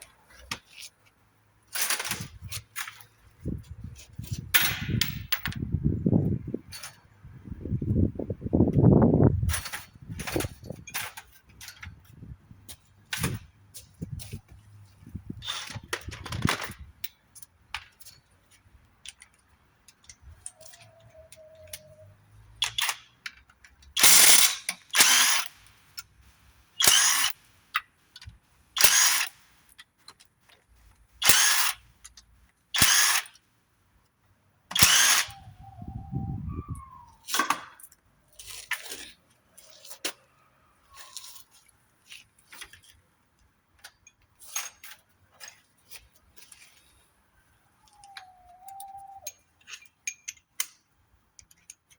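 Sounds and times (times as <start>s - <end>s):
metal clicks and knocks: 4.5s - 5.6s
power wrench bursts: 24.0s - 25.6s, 26.8s - 27.4s, 28.8s - 29.4s, 31.2s - 31.8s, 32.8s - 33.4s, 34.7s - 35.4s.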